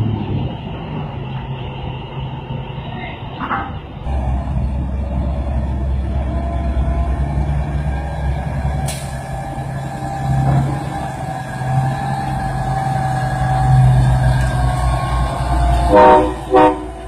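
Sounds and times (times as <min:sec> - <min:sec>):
heavy truck engine running: 0:00.0 - 0:17.0.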